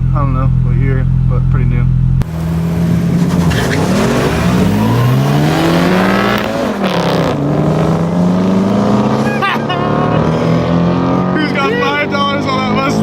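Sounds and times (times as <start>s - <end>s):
car engine accelerating hard: 2.2s - 13.0s.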